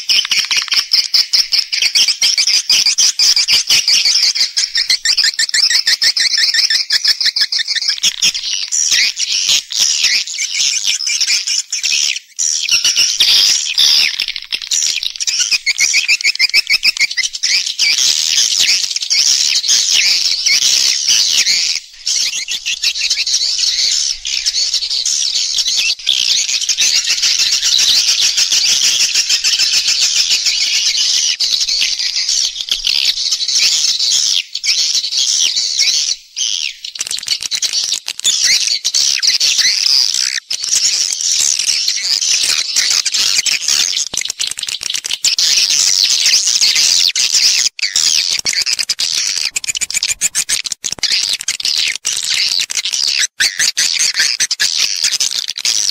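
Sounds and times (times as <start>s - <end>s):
swiftlets twittering: 48.9s - 50.7s.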